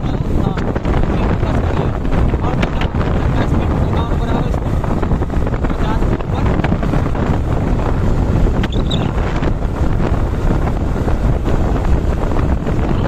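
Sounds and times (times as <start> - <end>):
motorcycle engine running: 0.0 - 13.0
road noise: 0.0 - 13.0
wind buffeting microphone: 0.0 - 13.0.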